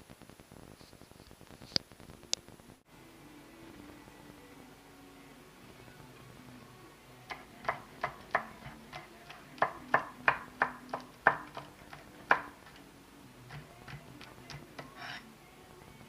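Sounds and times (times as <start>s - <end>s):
knife chopping on cutting board: 7.3s - 12.8s.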